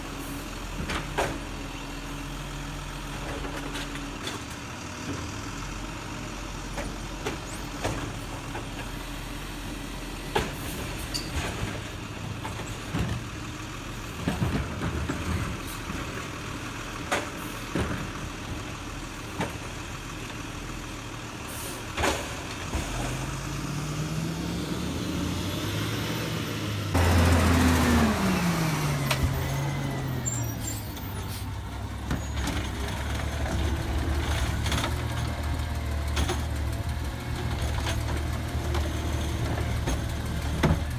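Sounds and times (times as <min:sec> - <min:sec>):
air brakes hissing: 0:21.5 - 0:22.0, 0:28.4 - 0:31.6
garbage truck engine idling: 0:24.8 - 0:40.9.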